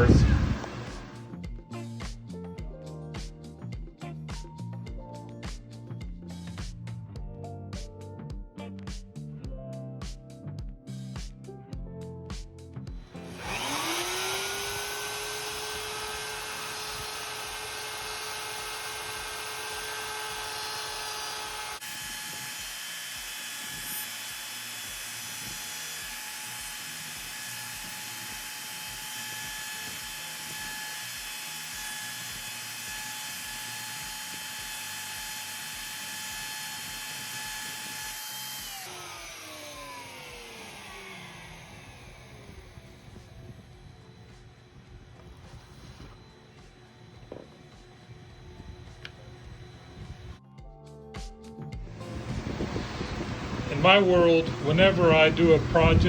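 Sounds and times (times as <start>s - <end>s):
wood router motor whining: 0.0s - 1.3s, 12.9s - 50.4s, 51.8s - 56.0s.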